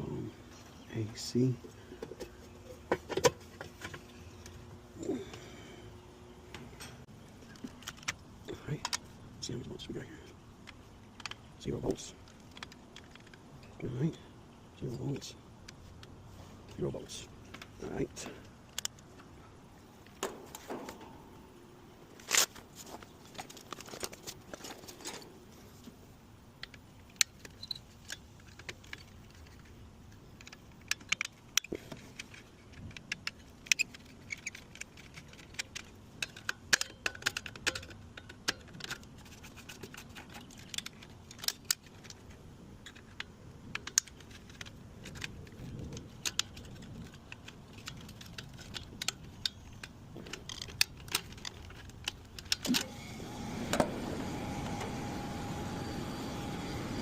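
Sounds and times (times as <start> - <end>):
metallic clicks of hand tools: 30.4 - 42.2.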